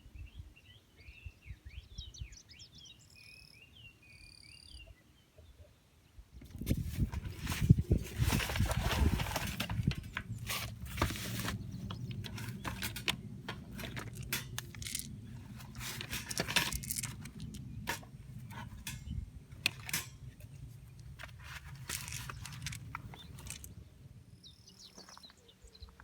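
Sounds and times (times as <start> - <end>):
metal camping gear clinking: 6.5 - 23.8
low outdoor rumble: 6.5 - 24.8.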